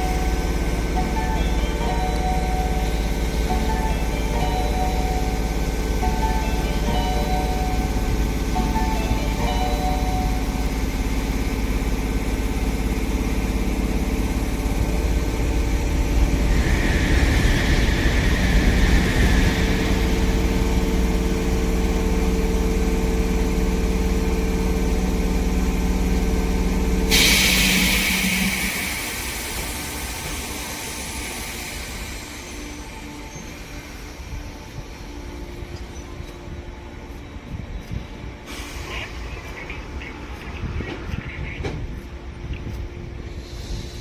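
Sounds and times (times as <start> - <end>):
train mechanical hum: 0.0 - 44.0
loud hiss: 27.1 - 34.2.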